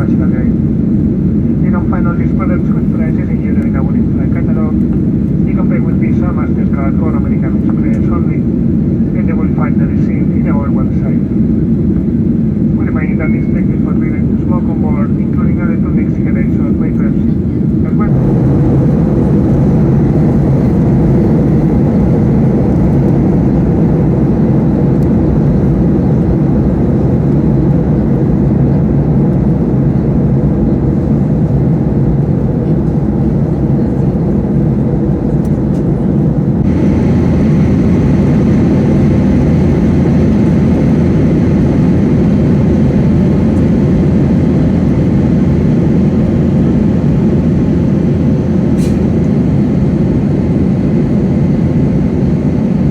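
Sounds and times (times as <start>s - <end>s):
jet engine drone in cabin: 0.0s - 52.9s
rushing air: 18.1s - 26.6s.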